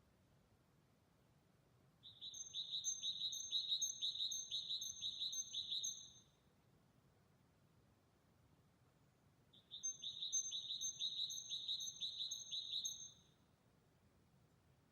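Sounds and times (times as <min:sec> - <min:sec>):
bird chirping rapidly: 0:09.7 - 0:13.2.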